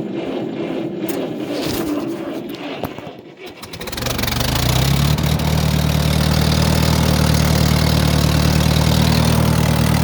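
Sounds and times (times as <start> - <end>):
tractor engine idling: 0.0 - 10.0.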